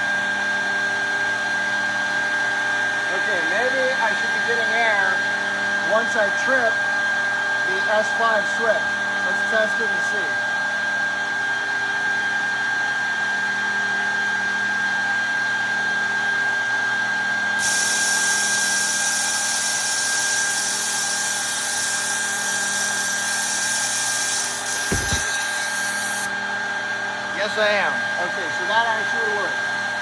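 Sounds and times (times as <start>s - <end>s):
compressed air hissing: 17.6s - 26.3s
high machine whine: 17.6s - 26.4s.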